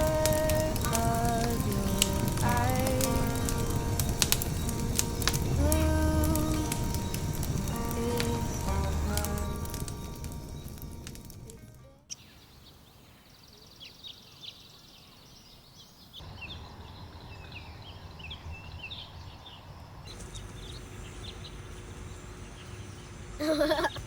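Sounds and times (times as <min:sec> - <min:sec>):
background music: 0:00.0 - 0:12.2
low outdoor rumble: 0:00.0 - 0:13.0, 0:16.2 - 0:24.0
small birds chirping: 0:00.0 - 0:24.0.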